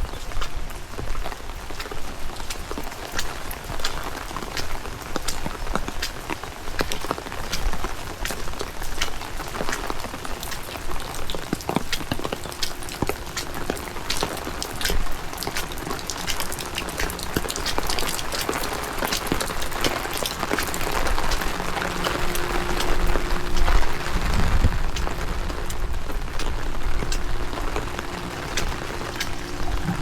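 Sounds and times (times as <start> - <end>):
raindrops ticking close by: 0.0 - 30.0
steady rain: 0.0 - 30.0
faint steady hum: 10.4 - 30.0.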